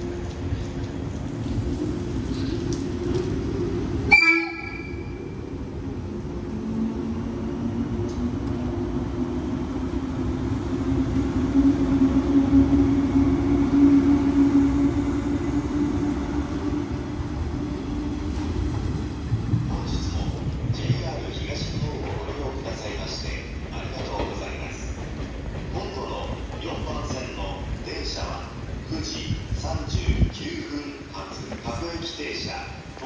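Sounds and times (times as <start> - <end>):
train horn blast: 4.1 - 5.2.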